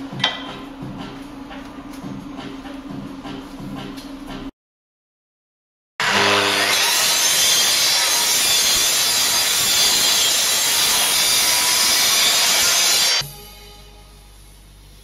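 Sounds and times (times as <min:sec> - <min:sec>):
mitre saw cutting wood: 0:06.0 - 0:13.2.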